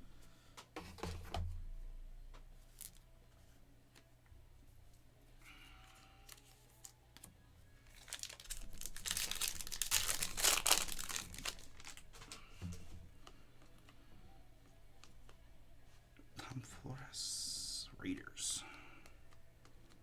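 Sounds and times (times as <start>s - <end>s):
wrapper tearing and crinkling: 7.9s - 12.4s.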